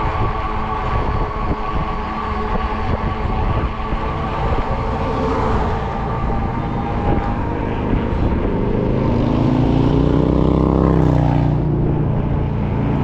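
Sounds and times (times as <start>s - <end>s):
motor vehicle passing: 0.0s - 13.0s
road traffic: 0.0s - 13.0s
wind noise on microphone: 0.0s - 13.0s.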